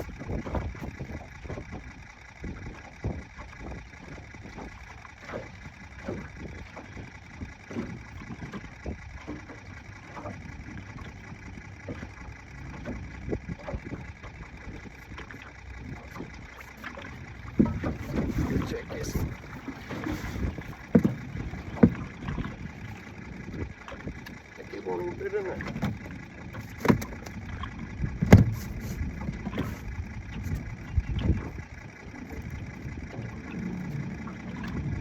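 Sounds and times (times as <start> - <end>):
wind rumbling on microphone: 0.0 - 4.7, 17.2 - 24.4, 25.6 - 35.0
steady low hum: 0.0 - 35.0
waves slapping boat hull: 0.0 - 35.0.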